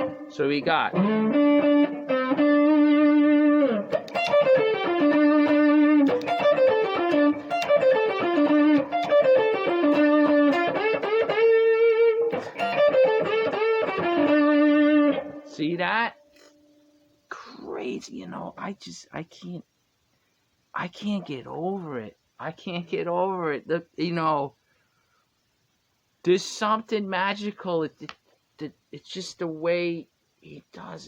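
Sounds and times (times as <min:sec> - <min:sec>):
electric guitar blues lick: 0:00.0 - 0:15.5.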